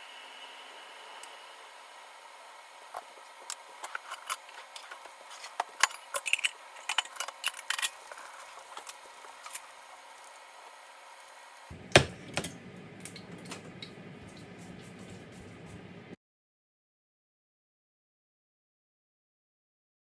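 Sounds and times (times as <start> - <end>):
utensils clinking on dishes: 11.7 - 15.9
steady low hum: 11.7 - 16.2.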